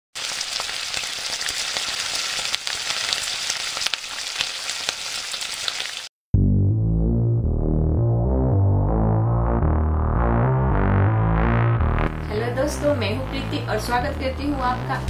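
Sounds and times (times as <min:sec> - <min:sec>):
food frying in hot oil: 0:00.2 - 0:06.1
keyboard music: 0:06.4 - 0:15.0.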